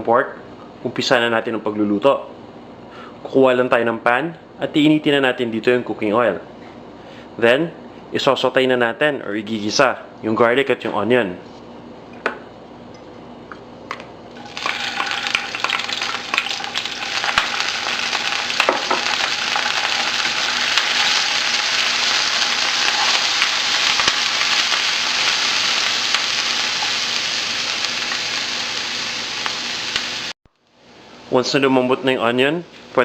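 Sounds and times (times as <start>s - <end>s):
garlic and onion sizzling in oil: 14.4s - 30.4s.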